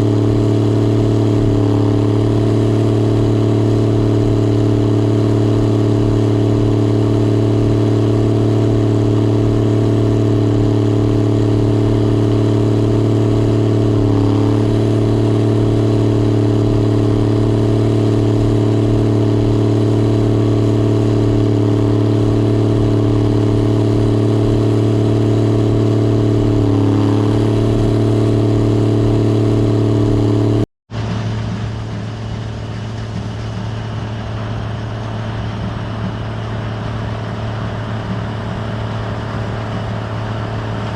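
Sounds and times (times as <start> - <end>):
combine harvester engine droning: 0.0 - 40.9.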